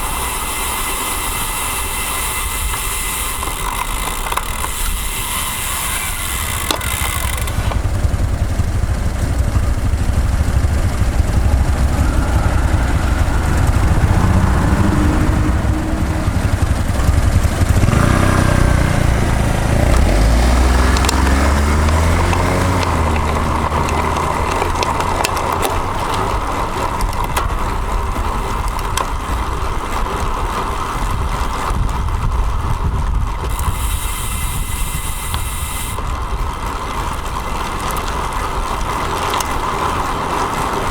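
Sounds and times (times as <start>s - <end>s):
road traffic: 0.0s - 40.9s
wind rumbling on microphone: 0.0s - 40.9s
vehicle engine revving: 5.3s - 28.3s.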